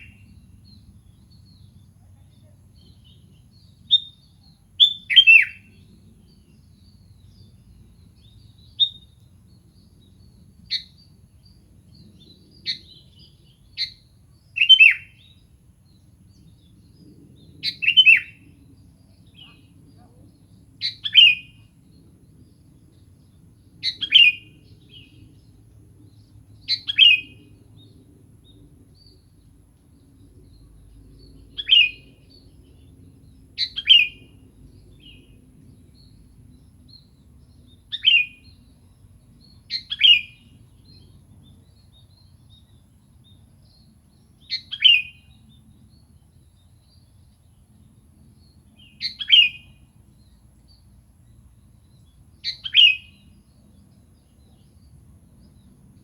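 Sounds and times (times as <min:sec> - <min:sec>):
bulbul calling: 0:49.0 - 0:49.7, 0:52.4 - 0:53.2.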